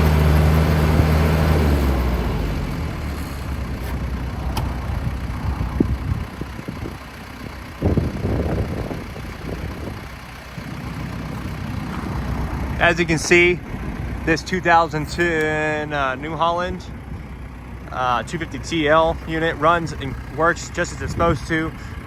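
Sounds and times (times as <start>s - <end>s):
tractor diesel engine running: 0.0s - 22.0s
sharp clicks and clunks: 2.6s - 5.0s.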